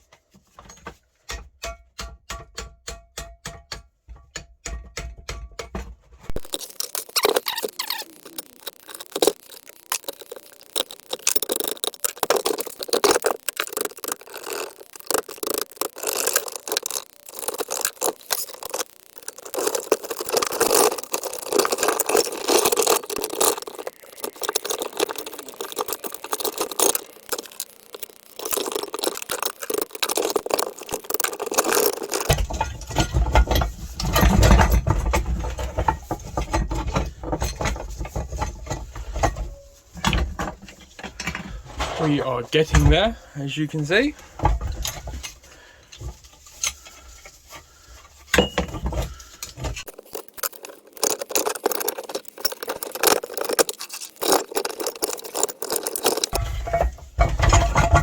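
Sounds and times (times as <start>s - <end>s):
metal scraping and rattling: 43.8s - 58.0s.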